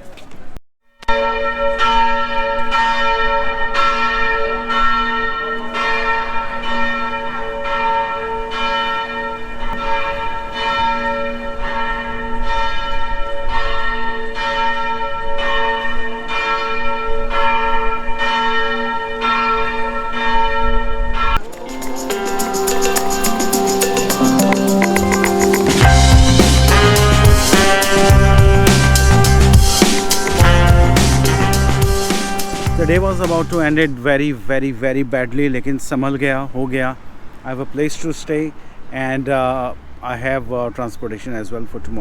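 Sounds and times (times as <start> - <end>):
large church bell tolling: 1.0 - 33.9.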